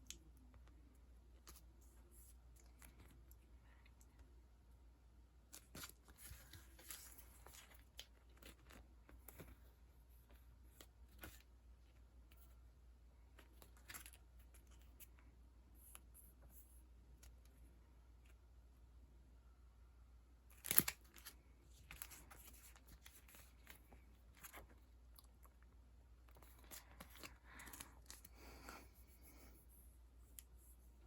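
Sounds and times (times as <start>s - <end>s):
sticker packaging rustling and crinkling: 5.5s - 12.6s, 13.3s - 18.4s, 20.5s - 31.0s.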